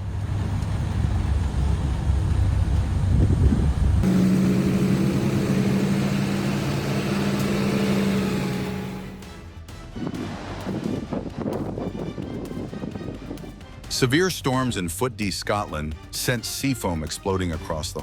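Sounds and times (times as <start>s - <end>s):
truck engine running: 0.0s - 9.6s.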